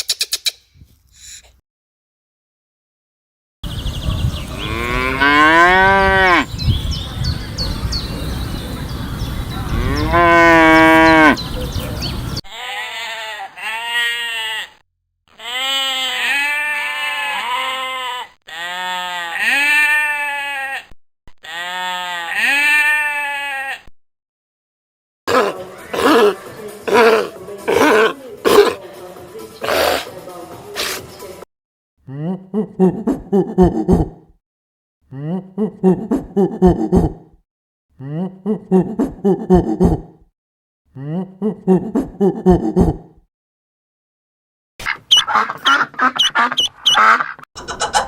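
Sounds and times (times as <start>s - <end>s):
cattle mooing: 4.6s - 6.5s, 9.7s - 11.4s.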